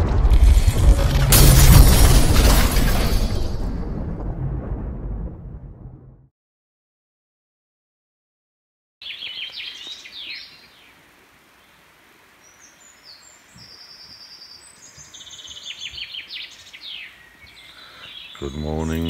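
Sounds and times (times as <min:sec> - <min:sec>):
songbirds chirping and trilling: 0:09.0 - 0:19.0.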